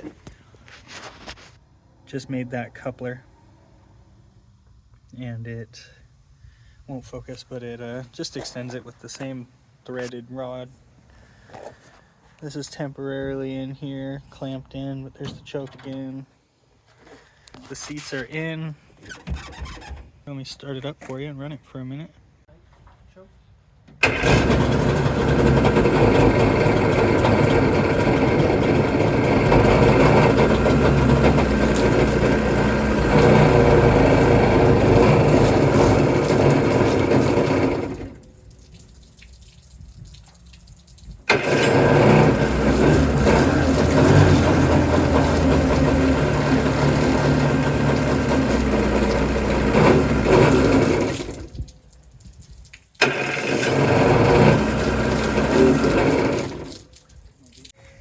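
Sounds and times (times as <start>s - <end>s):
jet-ski engine running: 24.0s - 38.2s, 41.3s - 51.4s, 53.0s - 56.7s.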